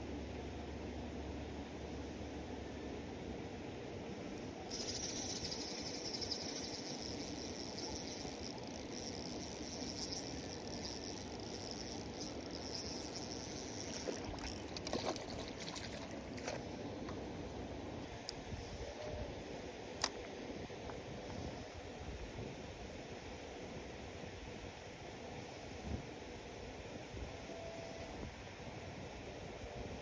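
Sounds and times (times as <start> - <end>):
sharp clicks: 4.7 - 16.6.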